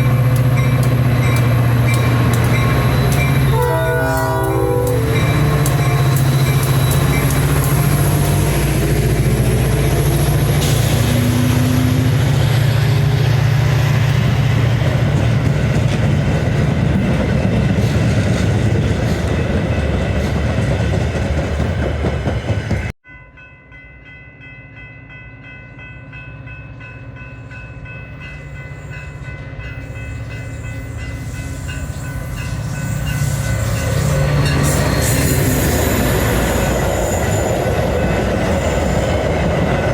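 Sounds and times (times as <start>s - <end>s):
diesel train passing: 0.0s - 23.0s, 25.1s - 39.9s
approaching train: 0.0s - 39.9s.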